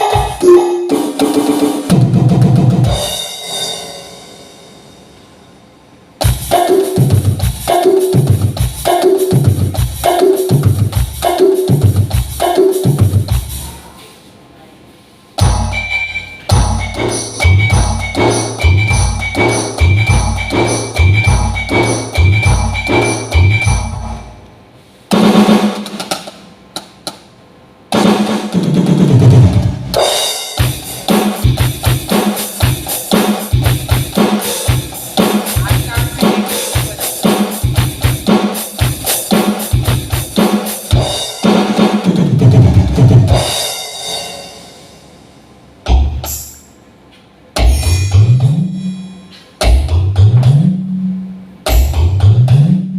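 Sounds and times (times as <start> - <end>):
electronic drum beat: 0.0 - 3.5, 6.2 - 13.8, 15.4 - 24.2, 27.9 - 43.9, 49.6 - 50.8, 51.7 - 52.9.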